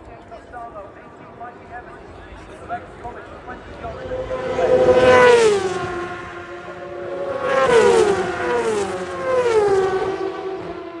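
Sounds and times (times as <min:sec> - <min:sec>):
racing motorcycles passing by: 0:02.6 - 0:11.0.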